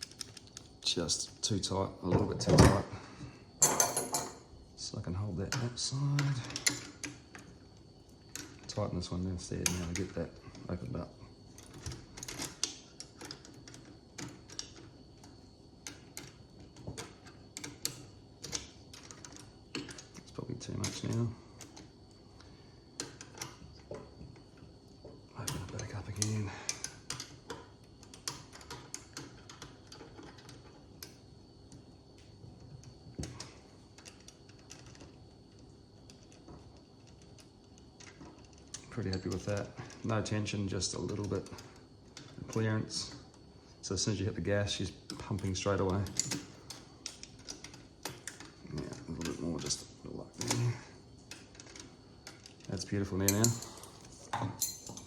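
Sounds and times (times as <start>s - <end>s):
hand tools clicking on metal: 51.3s - 55.0s.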